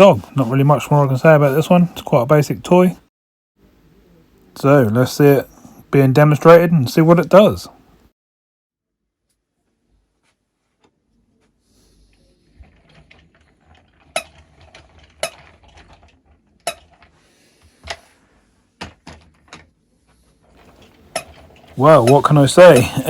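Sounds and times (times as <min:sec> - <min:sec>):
plastic toy rattling: 0:12.6 - 0:17.2.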